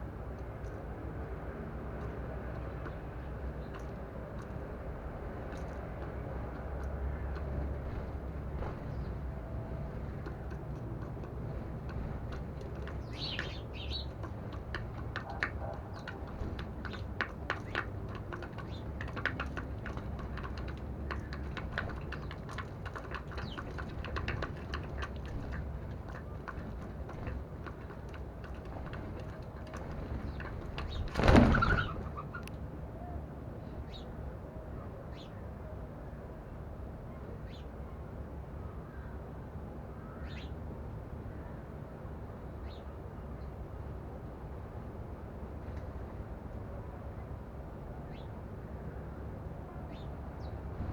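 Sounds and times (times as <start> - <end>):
beaks pecking at seed: 1.9 - 32.5
flurry of wings: 7.2 - 32.5
bird chirps: 12.9 - 14.2.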